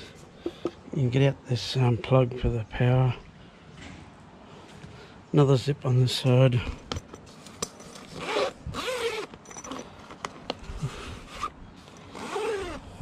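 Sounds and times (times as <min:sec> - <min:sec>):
zip rasping: 0:08.1 - 0:09.9, 0:10.6 - 0:13.0.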